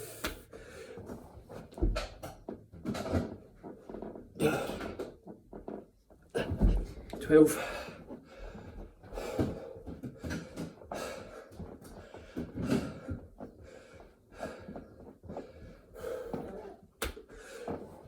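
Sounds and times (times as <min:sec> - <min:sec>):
man breathing hard: 0:07.5 - 0:16.5, 0:17.3 - 0:18.0.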